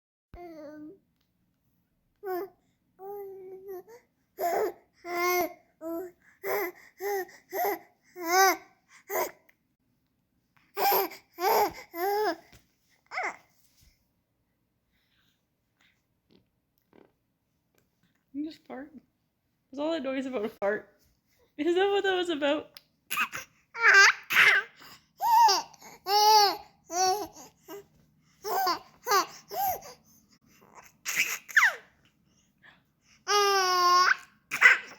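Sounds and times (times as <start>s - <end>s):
baby babbling: 2.2s - 9.3s, 28.4s - 29.9s, 33.3s - 34.9s.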